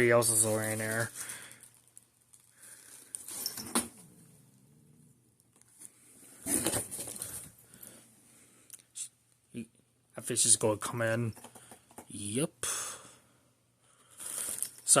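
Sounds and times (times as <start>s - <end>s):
rustling: 0.2s - 4.6s, 5.4s - 8.0s.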